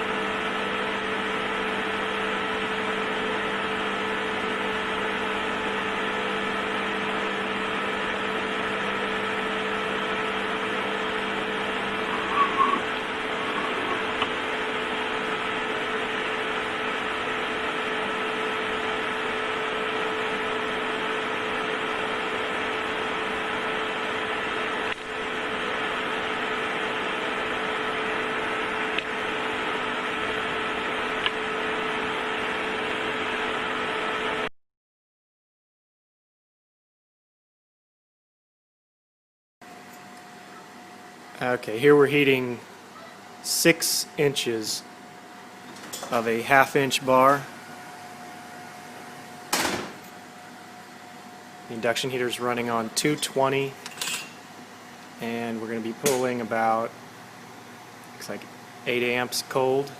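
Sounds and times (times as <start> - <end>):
machine hum: 0.1 - 34.4.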